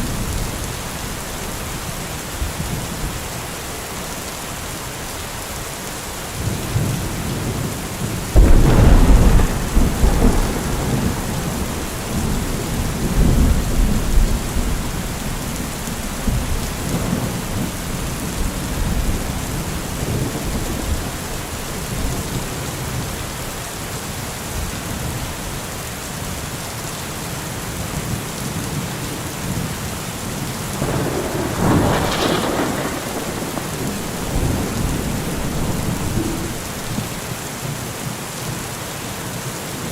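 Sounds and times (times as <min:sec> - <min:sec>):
steady rain falling: 0:00.0 - 0:39.9
thunder rumbling: 0:06.4 - 0:23.3, 0:30.8 - 0:37.4.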